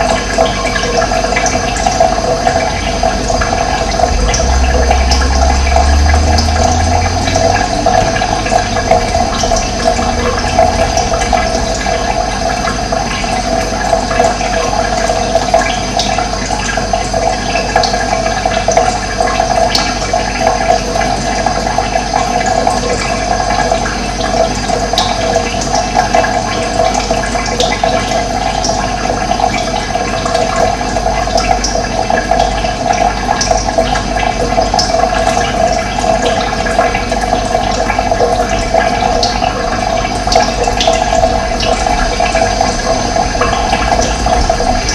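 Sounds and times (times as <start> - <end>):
running water: 0.0 - 44.9
low rumble: 1.6 - 14.7, 36.9 - 44.9.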